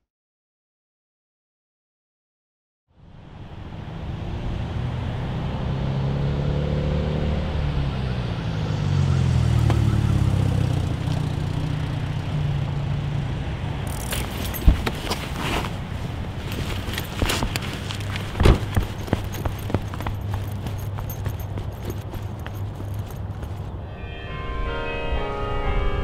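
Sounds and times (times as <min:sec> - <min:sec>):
car engine running: 0:13.8 - 0:23.7.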